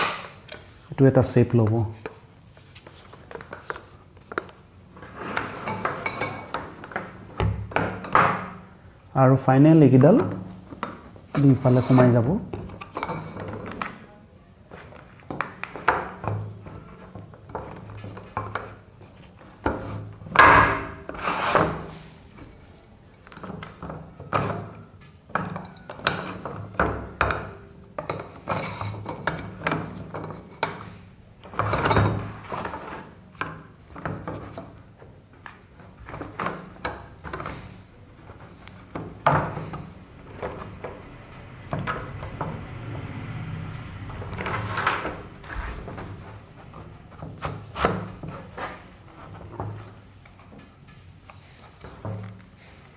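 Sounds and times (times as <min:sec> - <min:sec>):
plastic parts knocking and clicking: 0:23.2 - 0:42.7.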